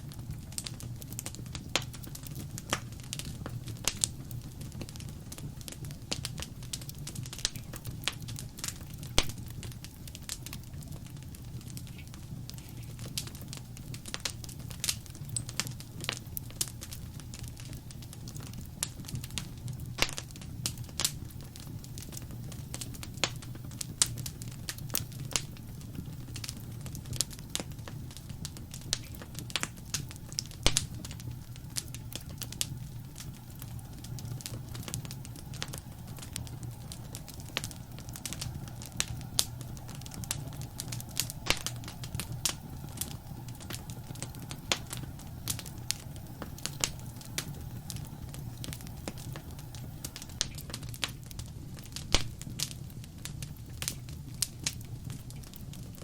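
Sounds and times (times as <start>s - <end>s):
burning wood popping and snapping: 0.0s - 56.0s
low rumble of flames: 0.0s - 56.0s.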